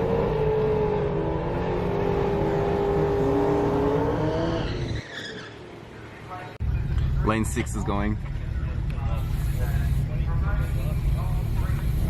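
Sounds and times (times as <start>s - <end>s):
drag racing car engine revving: 0.0s - 4.9s.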